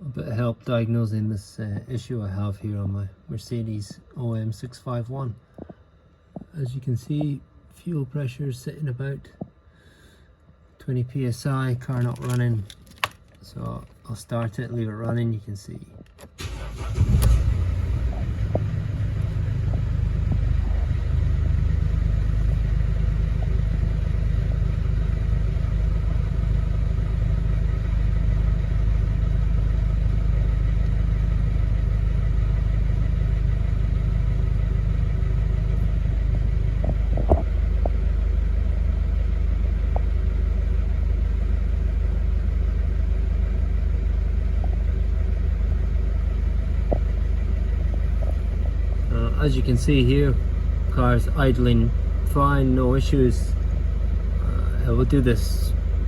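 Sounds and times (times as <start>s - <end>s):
diesel engine idling: 16.4s - 56.0s.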